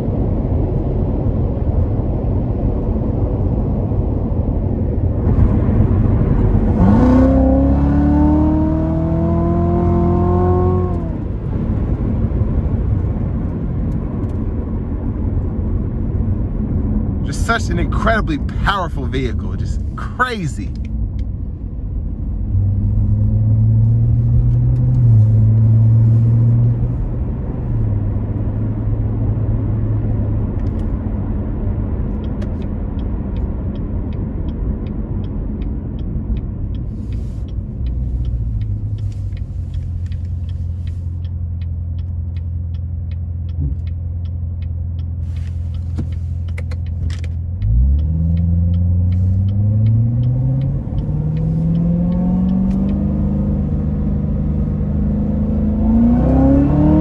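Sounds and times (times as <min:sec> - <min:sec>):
car engine cruising and revving: 0:00.0 - 0:57.0
light regular ticking: 0:32.1 - 0:53.4.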